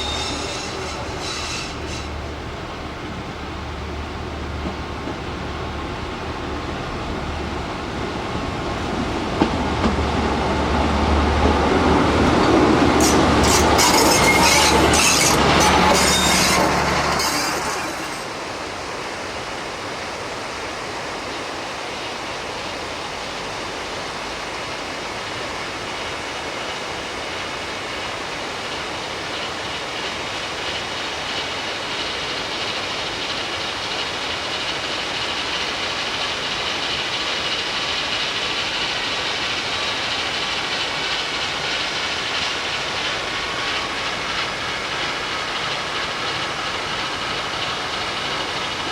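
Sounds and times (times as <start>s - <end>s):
wheel squeal: 0.0s - 2.3s, 12.9s - 18.4s
steady hiss: 0.0s - 48.9s
train engine humming low: 0.0s - 48.9s.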